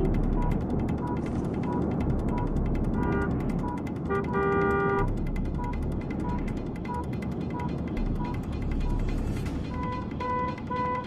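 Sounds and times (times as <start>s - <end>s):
fast ticking: 0.0s - 11.0s
steady background rush: 0.0s - 11.0s
car horn: 3.0s - 3.4s, 4.0s - 5.8s.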